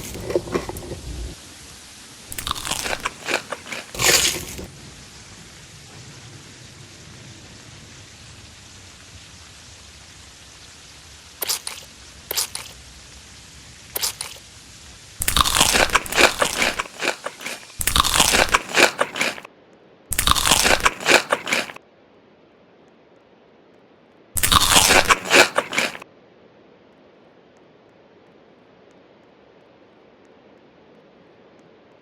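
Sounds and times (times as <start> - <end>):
crunchy food being chewed: 0.0 - 4.7, 11.4 - 12.8, 13.9 - 14.5, 15.2 - 19.5, 20.1 - 21.8, 24.4 - 26.0.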